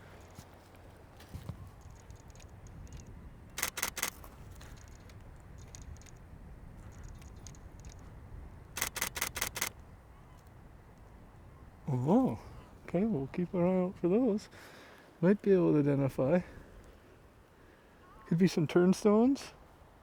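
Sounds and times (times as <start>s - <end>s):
camera shutter clicks: 3.6s - 6.2s, 8.8s - 9.8s.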